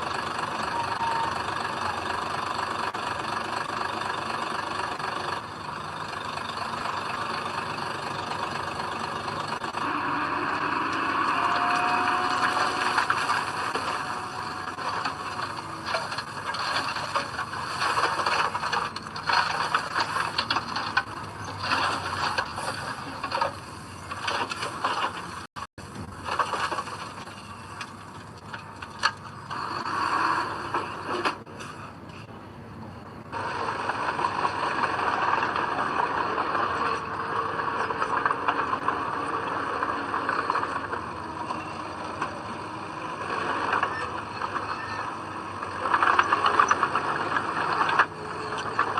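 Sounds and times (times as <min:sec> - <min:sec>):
earthmoving machinery running: 0:00.0 - 0:25.4, 0:33.2 - 0:48.9
scraping and clattering: 0:09.5 - 0:31.9.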